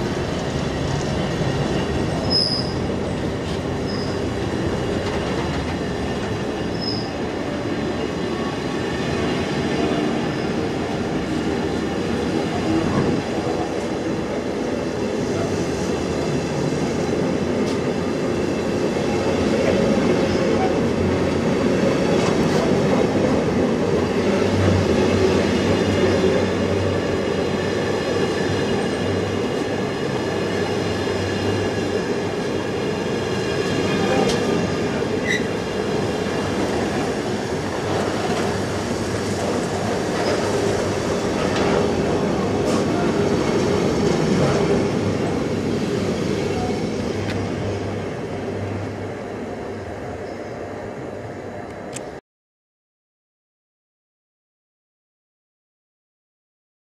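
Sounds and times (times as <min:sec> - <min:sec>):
rumble of wheels on rail: 0:00.0 - 0:52.2
high-pitched wheel squeal: 0:02.2 - 0:02.8, 0:06.6 - 0:07.2.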